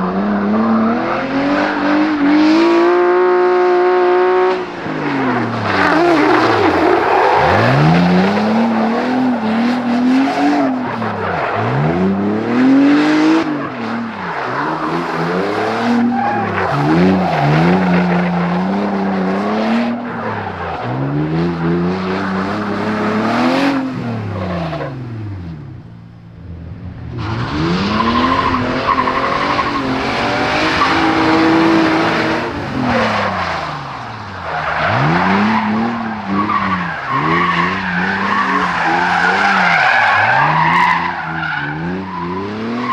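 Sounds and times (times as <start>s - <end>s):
car engine revving: 0.0s - 42.9s
tyres skidding and squealing: 0.0s - 42.9s.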